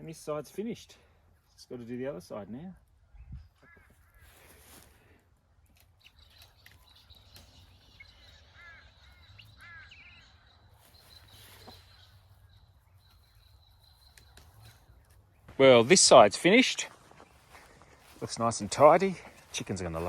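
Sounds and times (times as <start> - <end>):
harsh bird calls: 3.0 - 20.0.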